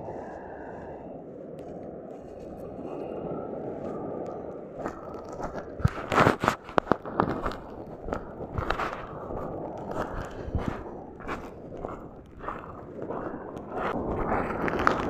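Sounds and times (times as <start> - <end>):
steady rushing background: 0.0 - 14.6
footsteps crunching: 4.9 - 14.0.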